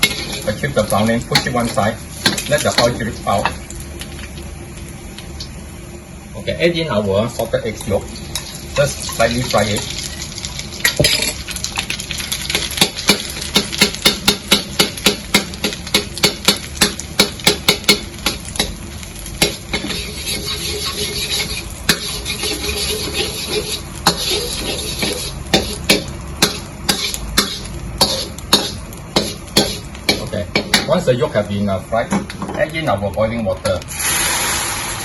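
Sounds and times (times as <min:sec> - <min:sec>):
metal spatula scraping a wok: 0:00.0 - 0:03.5, 0:15.3 - 0:30.9
food sizzling in oil: 0:00.0 - 0:35.0.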